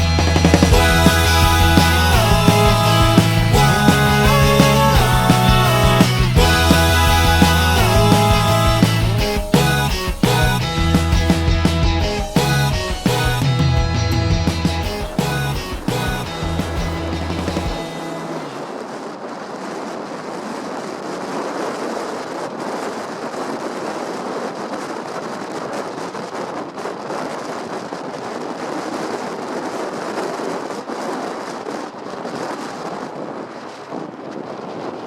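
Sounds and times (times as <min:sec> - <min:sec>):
wind on the microphone: 0:17.9 - 0:35.0.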